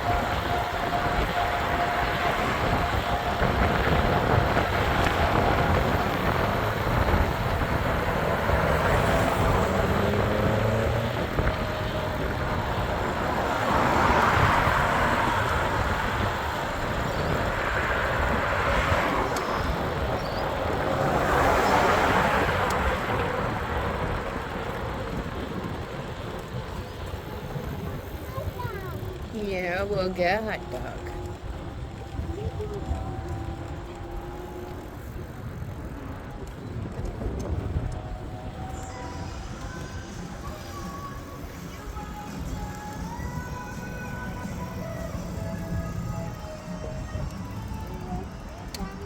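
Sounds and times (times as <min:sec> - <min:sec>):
road traffic passing: 0:00.0 - 0:49.0.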